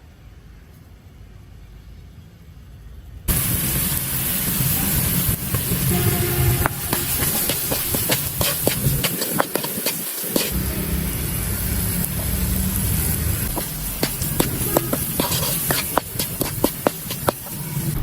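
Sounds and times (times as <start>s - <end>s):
food sizzling and crackling: 3.3s - 18.0s.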